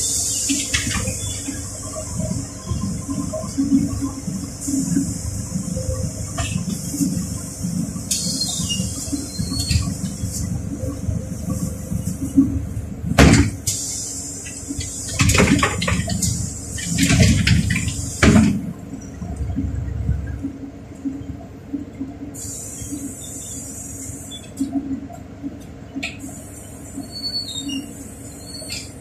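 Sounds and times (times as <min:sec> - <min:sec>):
bus engine rumble: 0:00.0 - 0:29.0
steady hiss: 0:13.6 - 0:17.3.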